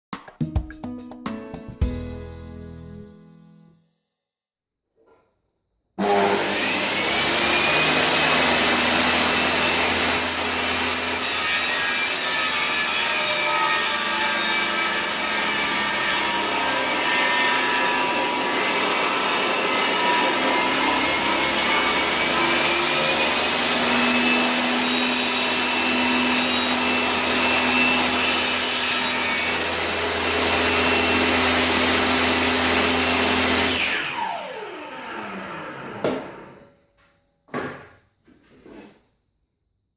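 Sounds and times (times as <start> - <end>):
table saw cutting wood: 6.0 - 36.7.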